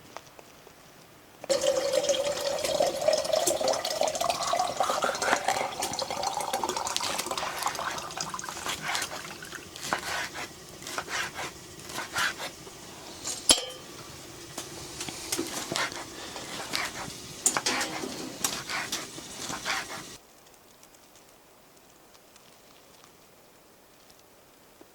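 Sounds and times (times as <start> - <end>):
metal cookware clinking and scraping: 1.5 - 20.2
sharp ringing metal clink: 13.5 - 14.0.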